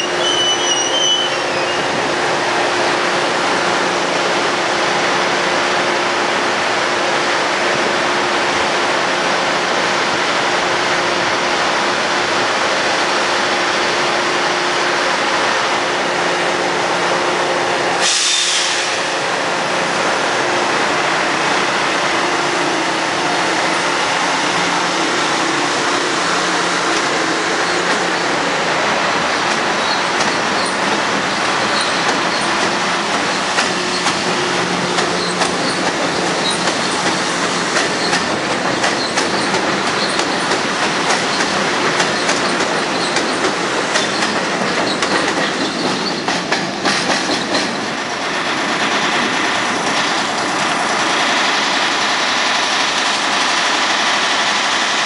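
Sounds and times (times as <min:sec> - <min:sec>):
wheel squeal: 0:00.0 - 0:01.9, 0:31.6 - 0:32.5
train approaching: 0:00.0 - 0:55.0
train wheels rumbling on rail: 0:00.0 - 0:55.0.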